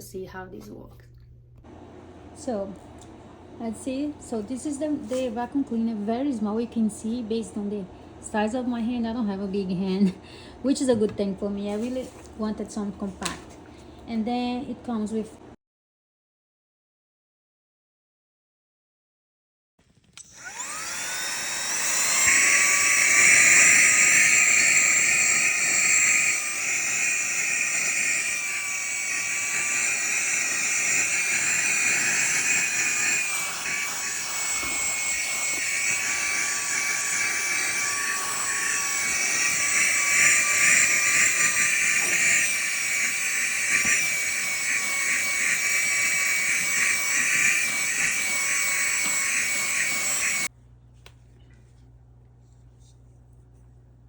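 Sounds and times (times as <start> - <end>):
vacuum cleaner high-pitched whine: 20.2 - 50.5.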